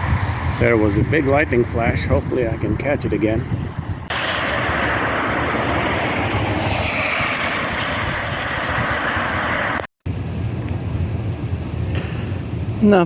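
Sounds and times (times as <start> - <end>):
strong wind on microphone: 0.0 - 9.9.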